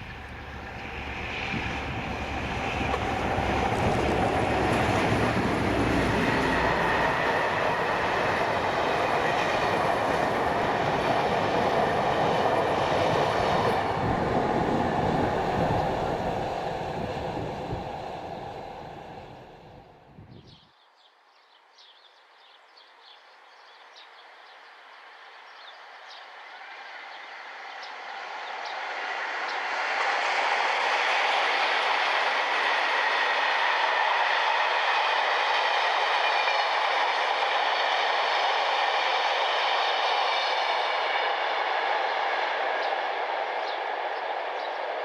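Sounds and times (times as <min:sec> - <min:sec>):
train wheels rushing on rails: 0:00.0 - 0:20.2, 0:24.8 - 0:45.0.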